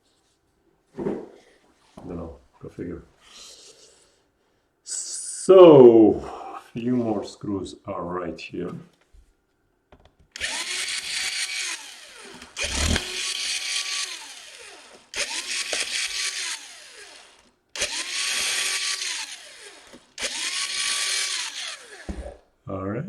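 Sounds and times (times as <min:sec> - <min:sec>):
electric screwdriver whining: 0:10.3 - 0:22.4.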